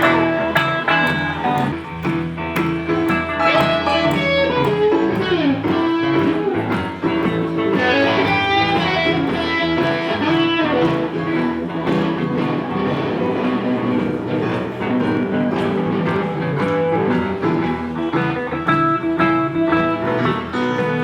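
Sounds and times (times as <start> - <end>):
electric blues guitar: 0.0 - 21.0.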